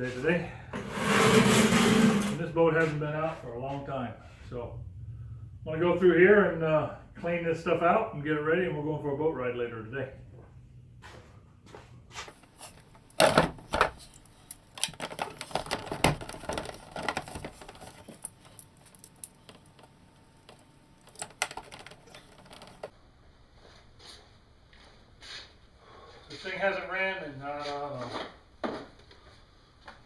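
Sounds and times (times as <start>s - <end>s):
gear clattering and knocking: 12.7s - 19.9s, 20.5s - 22.9s.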